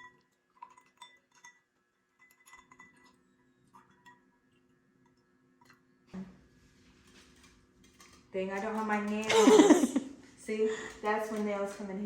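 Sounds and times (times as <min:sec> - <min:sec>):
glassware clinking: 0:00.0 - 0:03.2.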